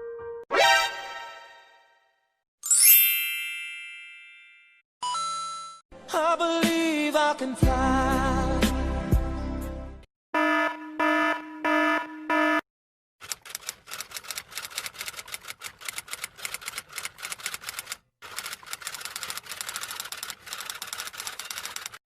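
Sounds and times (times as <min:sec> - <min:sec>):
fast clicking clatter: 0:13.2 - 0:22.0.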